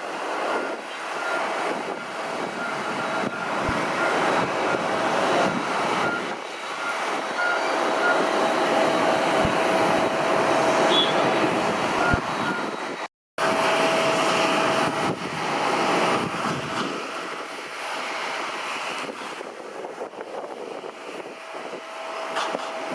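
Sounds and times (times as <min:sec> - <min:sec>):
jet engines taxiing: 0:00.0 - 0:22.9.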